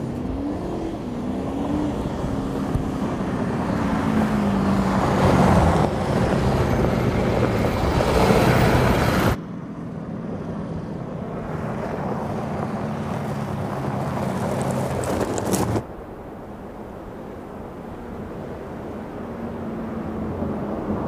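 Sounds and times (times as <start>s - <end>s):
gravel ticks: 12.6s - 15.9s
tyres rushing over gravel: 13.4s - 15.9s.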